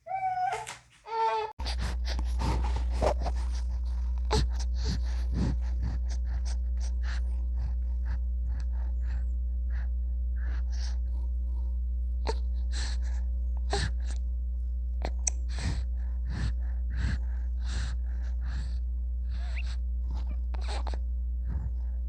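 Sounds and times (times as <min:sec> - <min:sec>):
steady low hum: 0:00.9 - 0:22.0.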